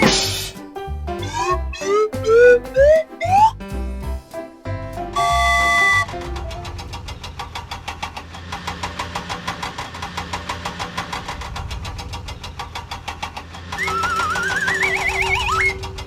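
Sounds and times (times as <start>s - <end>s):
vehicle engine idling: 4.9s - 14.2s.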